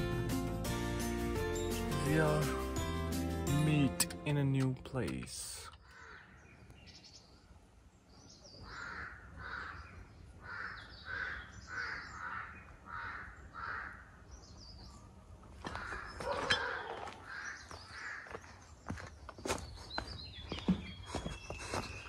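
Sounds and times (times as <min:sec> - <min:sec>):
small birds chirping: 0:03.6 - 0:22.0
bird calling: 0:05.6 - 0:07.3, 0:08.2 - 0:19.0
footsteps on the ground: 0:15.4 - 0:22.0.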